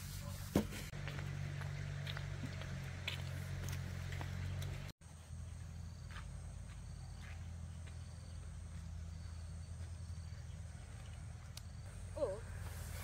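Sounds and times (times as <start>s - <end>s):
insects chirring: 5.1s - 13.0s.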